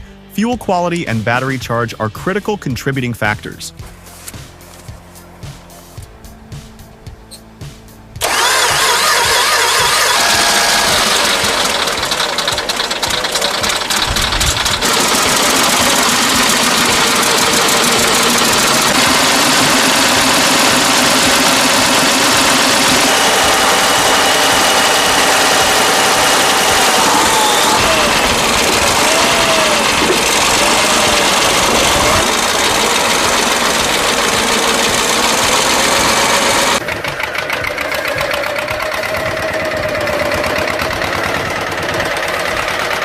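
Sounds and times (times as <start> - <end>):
diesel tractor engine starting: 7.2 - 43.0.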